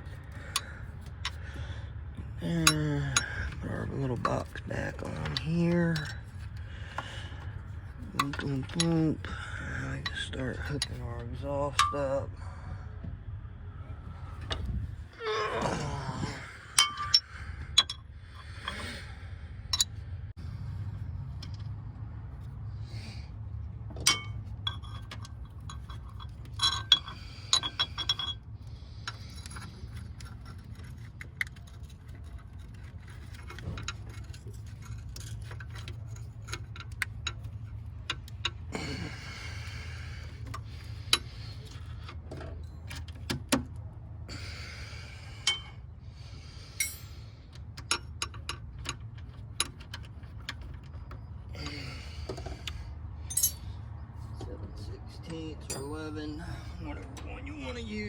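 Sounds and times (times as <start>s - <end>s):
metal parts clinking: 2.5s - 6.7s, 16.6s - 18.0s, 24.0s - 39.2s, 46.7s - 51.8s, 53.2s - 53.8s.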